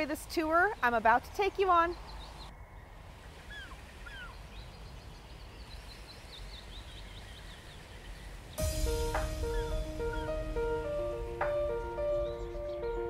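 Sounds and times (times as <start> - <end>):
small birds chirping: 0.0 - 13.0
low rumble: 8.6 - 13.0.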